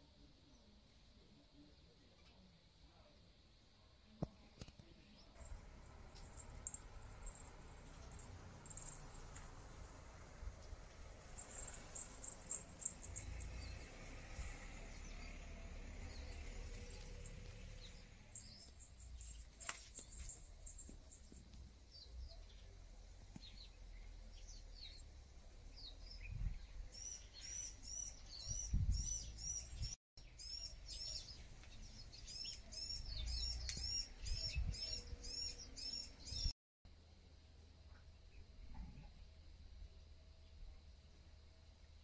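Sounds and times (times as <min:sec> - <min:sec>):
small bird chirping: 0:04.7 - 0:36.5.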